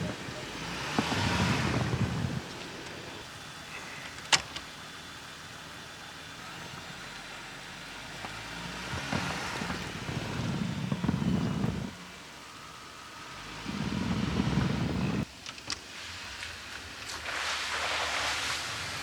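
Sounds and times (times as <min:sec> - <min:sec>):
car engine running: 0:00.0 - 0:15.3.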